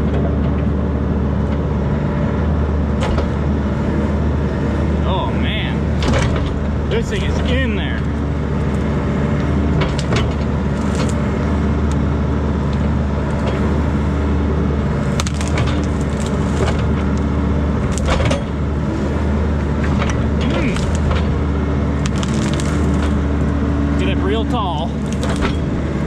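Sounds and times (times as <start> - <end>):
excavator diesel engine under load: 0.0 - 26.0
wood cracking and snapping: 9.8 - 12.0, 15.0 - 18.7, 19.6 - 23.6, 25.0 - 26.0.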